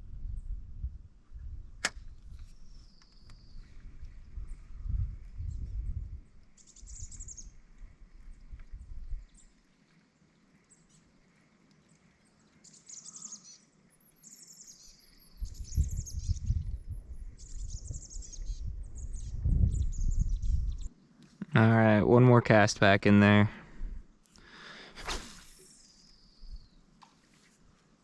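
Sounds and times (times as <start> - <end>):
birds chirping: 11.9 - 21.2.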